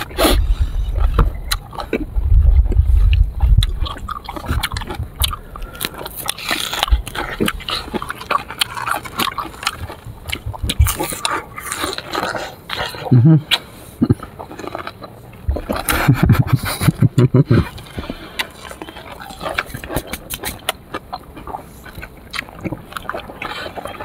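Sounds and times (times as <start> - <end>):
heavy low rumble: 0.0 - 11.6
chewing crunchy fruit: 0.0 - 24.0.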